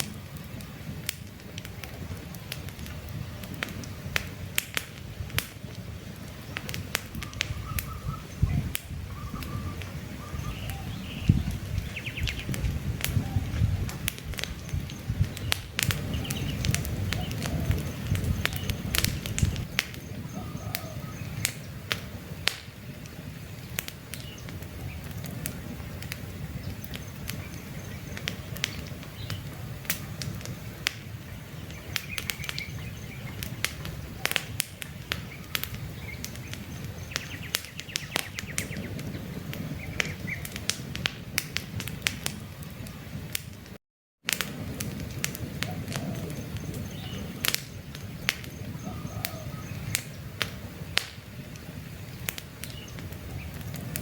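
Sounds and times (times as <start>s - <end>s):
campfire crackling: 0.0s - 54.0s
birds chirping: 6.2s - 40.7s, 45.6s - 54.0s.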